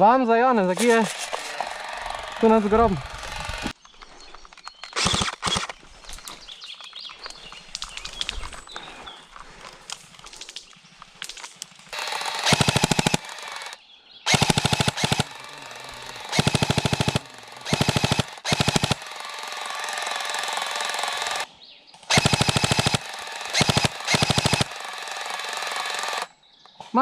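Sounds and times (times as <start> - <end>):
airsoft gun firing bursts: 4.9 - 5.7, 12.0 - 21.5, 22.1 - 26.3.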